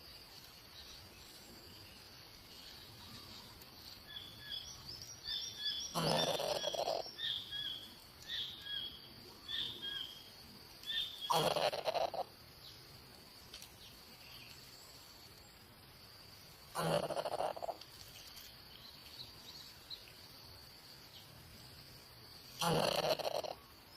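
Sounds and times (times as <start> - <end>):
insect drone: 0.0 - 23.9
bird chirping: 0.1 - 12.8.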